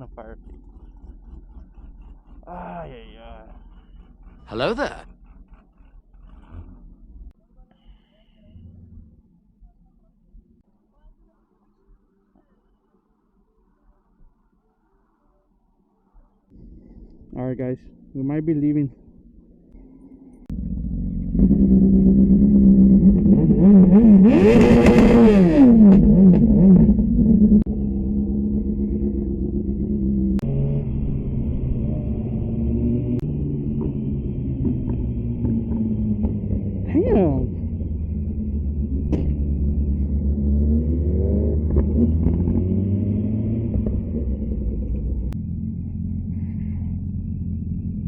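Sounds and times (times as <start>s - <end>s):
engine revving loudly: 0.0s - 7.4s, 20.5s - 45.4s.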